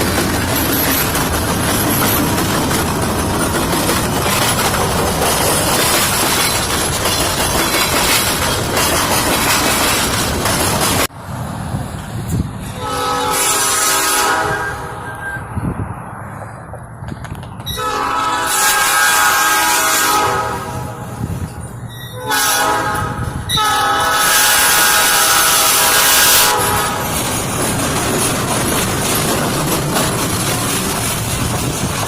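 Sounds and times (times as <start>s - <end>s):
train rumbling past: 0.0s - 32.0s
locomotive air horn blasts: 12.7s - 15.4s, 17.7s - 21.3s, 22.1s - 27.1s.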